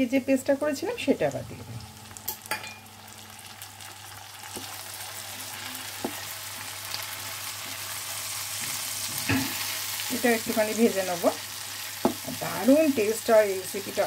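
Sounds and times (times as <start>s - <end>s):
paste sizzling in oil: 2.8s - 14.0s.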